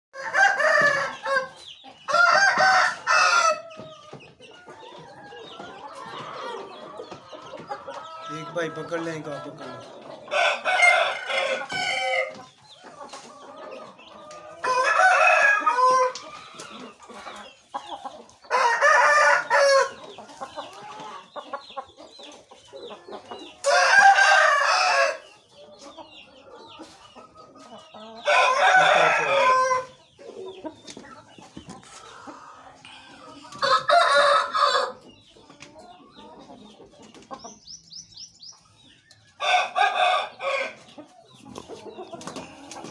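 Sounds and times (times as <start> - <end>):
rooster crowing: 0.2 - 3.6, 14.6 - 16.2, 18.5 - 19.9, 23.7 - 25.2, 28.2 - 29.9, 33.6 - 35.0, 39.4 - 40.8.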